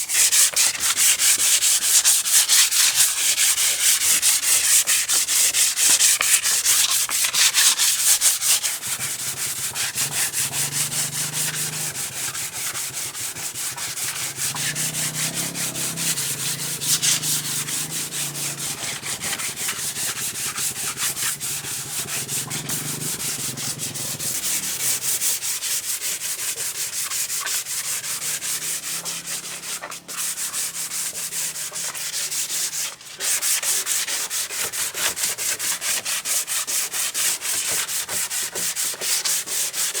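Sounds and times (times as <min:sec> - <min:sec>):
hand sanding strokes: 0:00.0 - 0:40.0.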